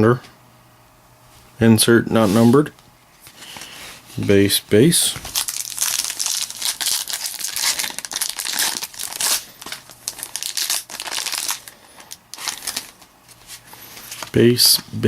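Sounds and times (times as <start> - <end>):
plastic wrappers crinkling: 5.1 - 14.4.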